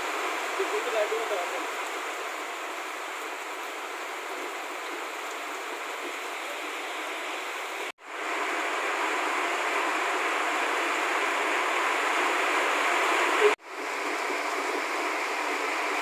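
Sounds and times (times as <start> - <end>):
running water rushing: 0.0 - 16.0.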